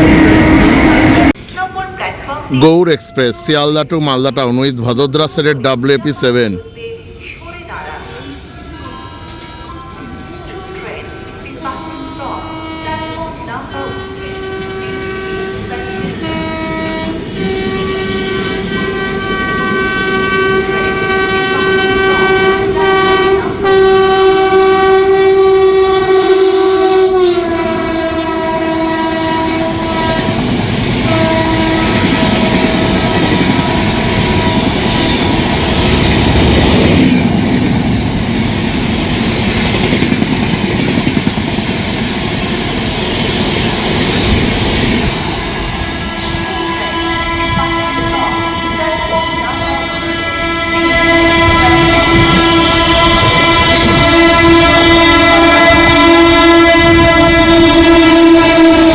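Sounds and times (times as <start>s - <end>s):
train horn blowing: 0.0s - 1.4s, 9.0s - 37.7s, 45.0s - 58.9s
passing train rumble and clickety-clack: 0.0s - 5.4s, 6.6s - 58.9s.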